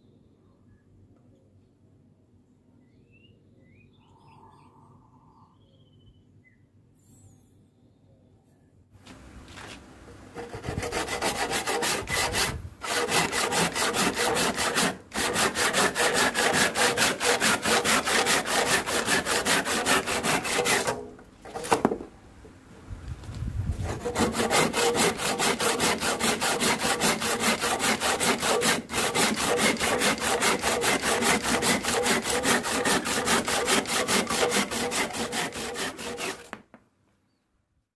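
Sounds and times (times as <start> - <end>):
hand saw cutting wood: 10.4 - 22.0, 23.8 - 36.6.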